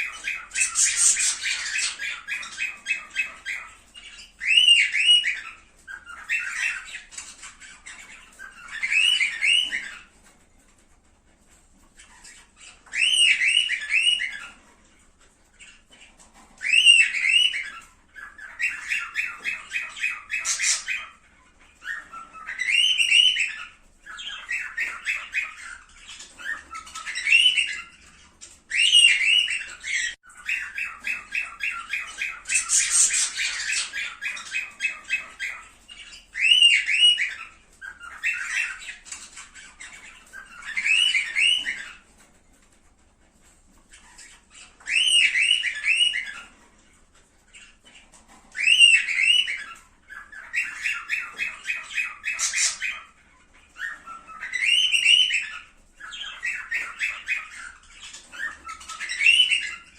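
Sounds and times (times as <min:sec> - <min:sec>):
rapid stuttering bird chatter: 0:00.0 - 0:10.3, 0:15.5 - 0:42.3
cockatiels whistled squawks: 0:00.0 - 0:10.4, 0:12.0 - 0:15.0, 0:15.6 - 0:42.3, 0:43.8 - 0:59.9.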